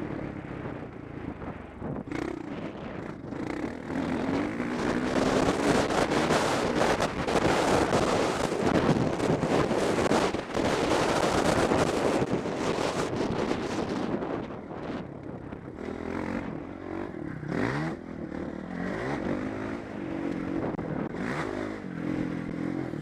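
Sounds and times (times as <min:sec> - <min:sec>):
wind rush on microphone: 0:00.0 - 0:23.0
motocross bike engine revving: 0:02.1 - 0:13.2, 0:15.8 - 0:23.0.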